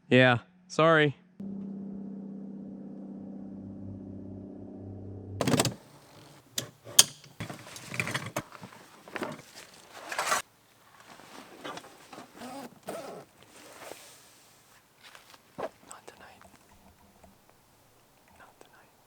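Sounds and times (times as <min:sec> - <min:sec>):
sharp clicks and knocks: 0:05.4 - 0:09.5
rustling of gear: 0:05.4 - 0:16.0.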